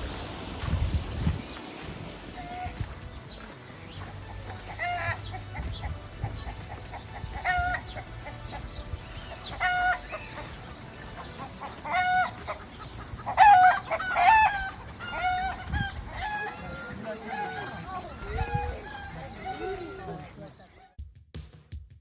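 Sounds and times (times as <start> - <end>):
fowl calling: 2.3 - 3.0, 4.0 - 20.9.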